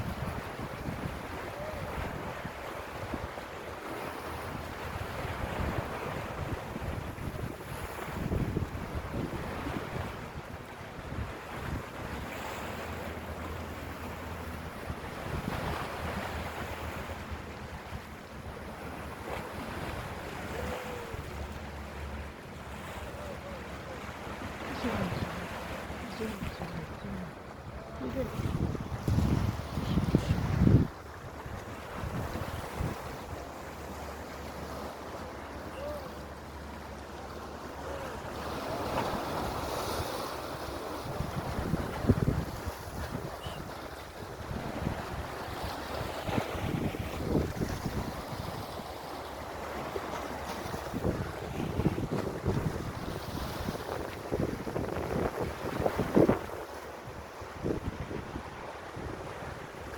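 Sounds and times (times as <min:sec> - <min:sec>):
sea waves washing: 0:00.0 - 0:59.9
wind buffeting microphone: 0:04.4 - 0:12.3, 0:24.3 - 0:33.9, 0:38.8 - 0:48.9, 0:49.9 - 0:59.9.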